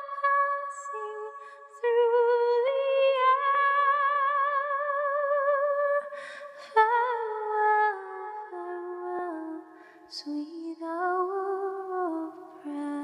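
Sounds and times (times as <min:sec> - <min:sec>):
person taking a breath: 0:06.1 - 0:06.6.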